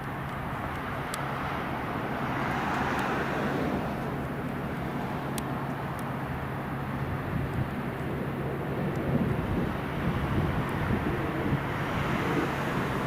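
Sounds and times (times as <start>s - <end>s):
diesel engine hum: 0.0s - 13.0s
faint high ticks: 2.9s - 3.2s, 5.3s - 6.1s.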